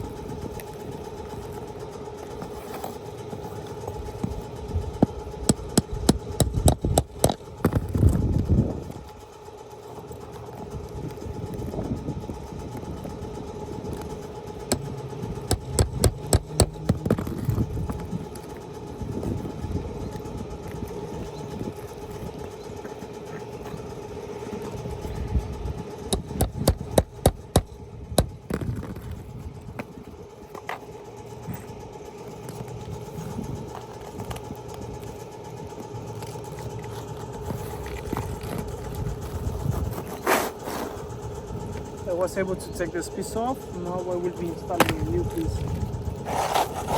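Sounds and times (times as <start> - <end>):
mechanical hum: 0.0 - 46.9
tapping and knocking on shingle: 5.0 - 8.0, 14.7 - 17.6, 26.1 - 29.1.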